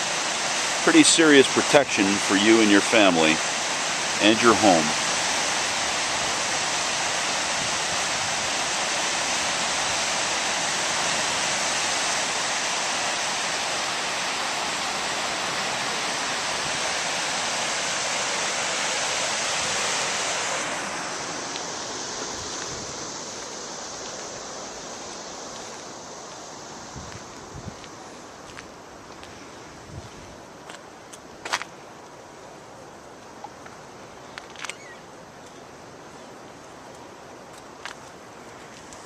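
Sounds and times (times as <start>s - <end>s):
river water rushing: 0.0s - 29.7s.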